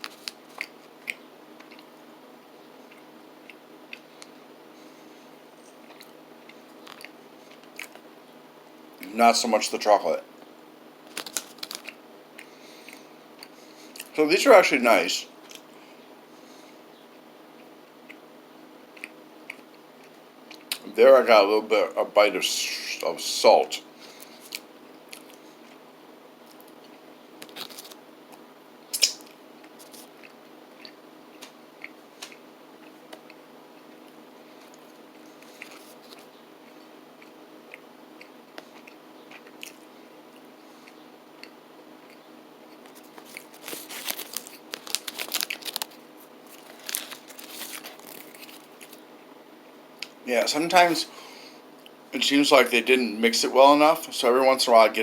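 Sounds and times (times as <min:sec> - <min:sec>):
man chewing cookies: 0:00.0 - 0:08.1, 0:10.4 - 0:14.2, 0:15.4 - 0:20.9, 0:23.8 - 0:50.2.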